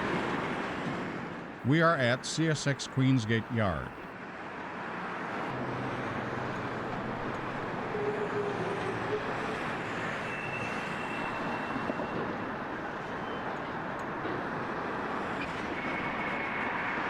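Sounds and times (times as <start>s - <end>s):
trains rumbling in rail yard: 6.4s - 17.0s.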